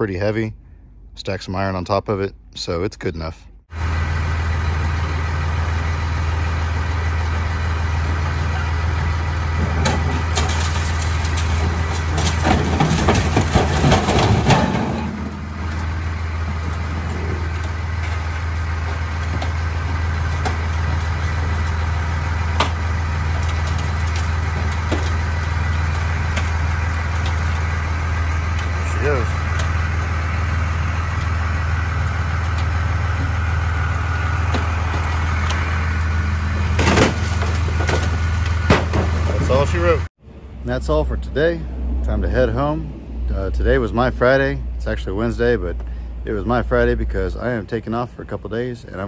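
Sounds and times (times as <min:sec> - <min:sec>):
vehicle engine humming: 0:00.0 - 0:49.0
clattering and rattling: 0:07.1 - 0:39.8.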